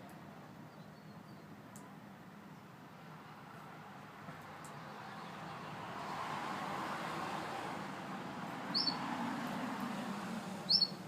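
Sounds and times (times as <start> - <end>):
canary chirp: 8.7 - 9.0, 10.7 - 11.0.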